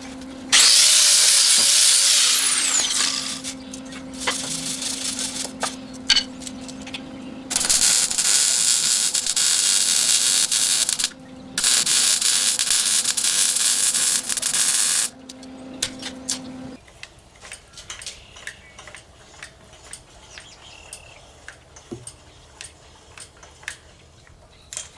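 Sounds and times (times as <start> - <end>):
steady hiss bursts: 0.0 - 16.8
faint steady hum: 0.0 - 24.9
clicks: 2.5 - 23.8.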